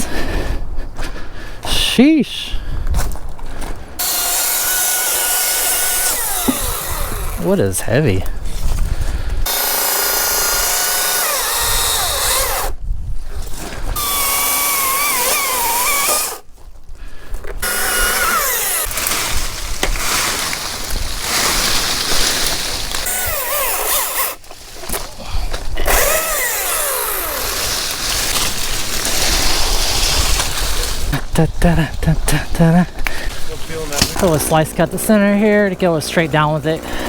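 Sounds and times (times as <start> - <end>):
chainsaw cutting wood: 4.0 - 7.6, 9.4 - 12.8, 13.9 - 16.5, 17.5 - 31.1, 36.2 - 37.0.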